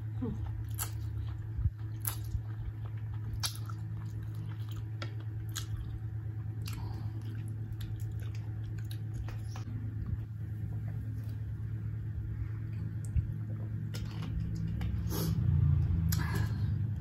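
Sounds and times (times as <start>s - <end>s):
low hum: 0.0s - 17.0s
chewing with mouth closed: 0.4s - 10.3s.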